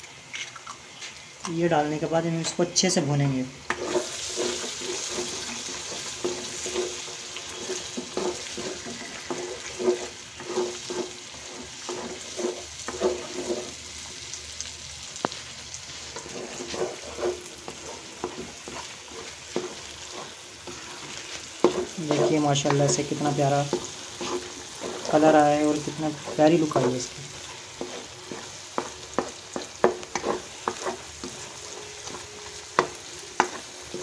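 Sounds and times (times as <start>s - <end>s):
eggs sizzling in oil: 0.0s - 34.0s
spatula scraping a wok: 3.6s - 14.1s, 15.9s - 34.0s.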